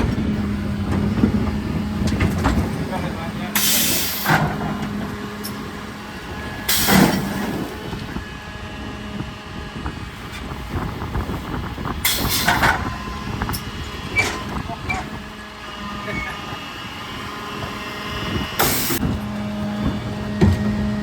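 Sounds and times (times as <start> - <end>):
truck engine running: 0.0 - 21.0
air hissing: 3.6 - 4.3.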